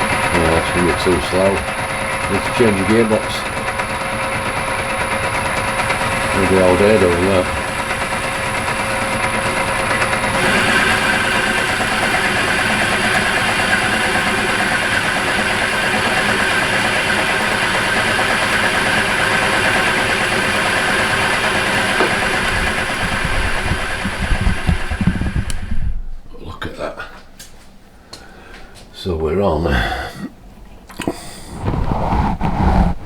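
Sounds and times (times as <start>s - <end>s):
lathe motor whirring: 0.0s - 25.9s
low thumps: 31.5s - 33.0s.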